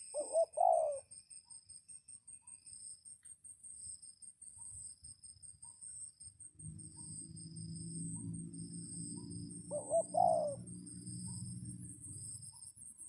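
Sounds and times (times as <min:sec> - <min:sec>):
dove-like cooing: 0:00.0 - 0:01.1, 0:08.0 - 0:12.5
insects trilling: 0:00.0 - 0:13.0.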